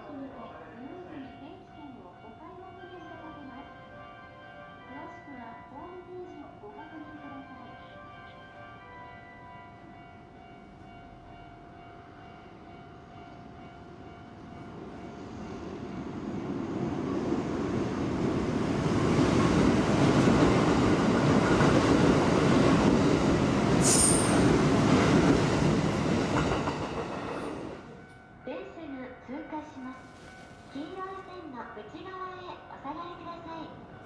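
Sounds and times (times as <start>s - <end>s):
electric train running on rails: 0.1s - 28.8s
high squeal of train wheels: 23.8s - 24.8s.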